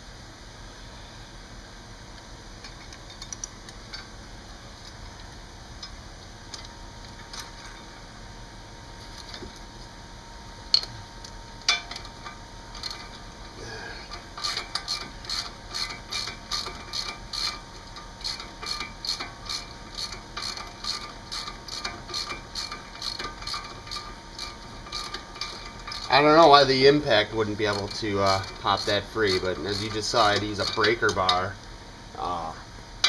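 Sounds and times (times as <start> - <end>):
ratchet wrench clicking: 14.1 - 26.6, 27.4 - 31.4.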